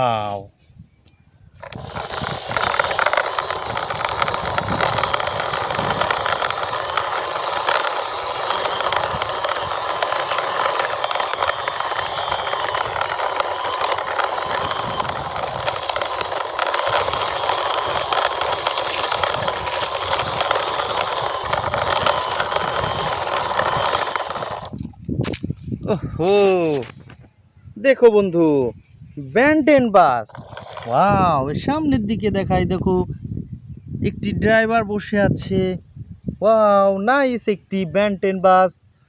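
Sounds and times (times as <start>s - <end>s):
toy plastic wheels rolling: 1.6s - 25.4s, 30.3s - 31.7s.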